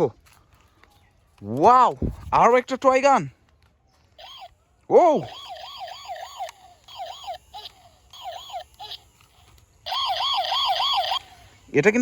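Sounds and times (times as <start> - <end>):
toy gun warbling siren: 4.2 - 11.7.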